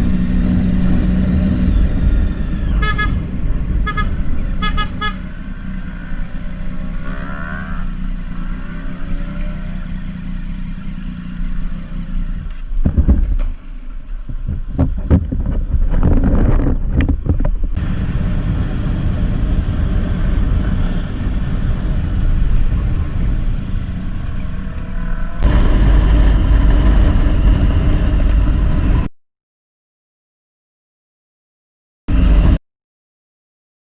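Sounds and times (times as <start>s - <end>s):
motorcycle riding in traffic: 0.0s - 29.1s
vehicle horn honking: 2.7s - 5.4s.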